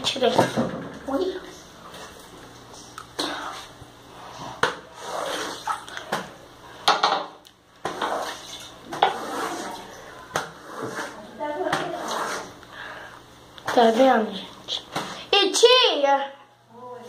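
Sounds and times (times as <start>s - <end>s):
objects knocking and clattering: 6.1s - 8.2s.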